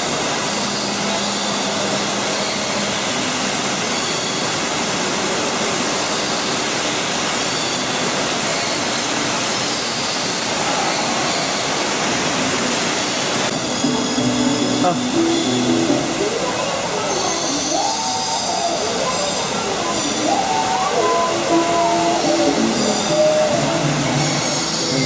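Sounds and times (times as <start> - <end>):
falling water rushing: 0.0 - 25.0
birds chirping: 13.5 - 25.0.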